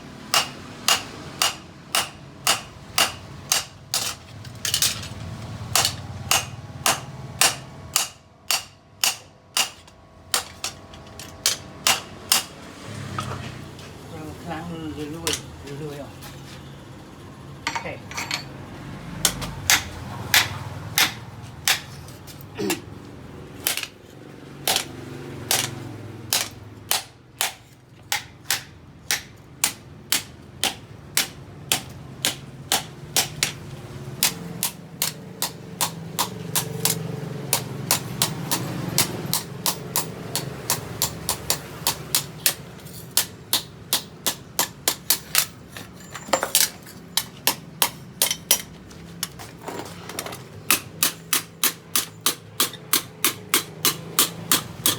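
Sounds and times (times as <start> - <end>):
hammer striking steel on anvil: 0.3 - 5.0, 5.7 - 12.6, 19.2 - 22.0, 24.6 - 24.9, 26.3 - 33.6, 34.2 - 45.6, 50.7 - 54.9.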